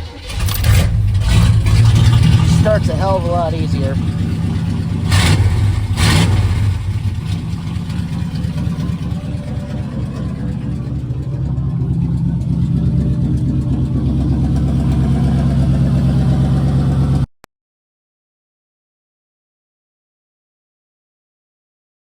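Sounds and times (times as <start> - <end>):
pickup engine with open exhaust: 0.2 - 17.3.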